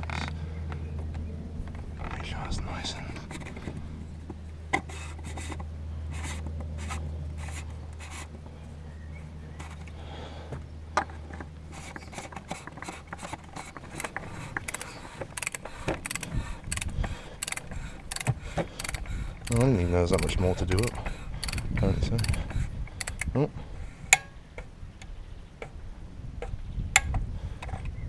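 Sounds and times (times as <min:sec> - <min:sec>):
low steady hum: 0:00.0 - 0:28.0
scraping and rubbing: 0:04.8 - 0:08.4, 0:09.5 - 0:10.0, 0:11.1 - 0:23.2
sharp clicks: 0:13.8 - 0:23.4.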